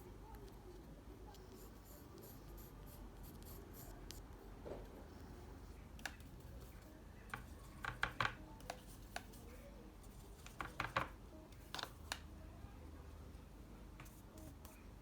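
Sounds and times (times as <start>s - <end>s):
tools clicking and tapping on desk: 7.3s - 9.4s, 10.4s - 12.2s.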